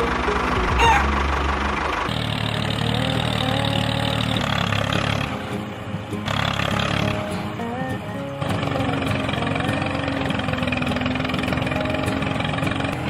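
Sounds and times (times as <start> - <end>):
small motor humming: 0.0 - 13.0.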